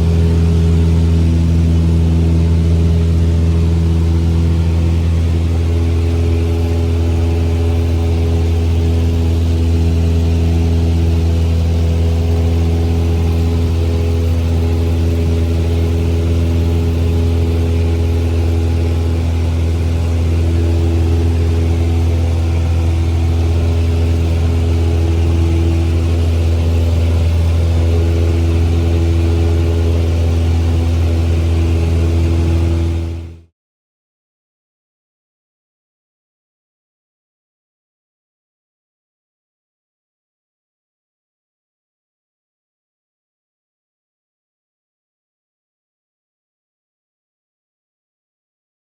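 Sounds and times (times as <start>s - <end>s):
small airplane engine droning: 0.0s - 33.5s.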